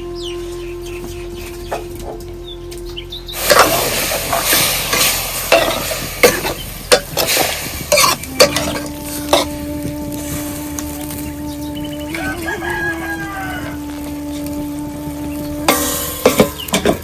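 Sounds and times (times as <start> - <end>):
utensil scraping a pan: 3.4 - 11.7, 15.7 - 17.0
food sizzling in a frying pan: 3.4 - 17.0.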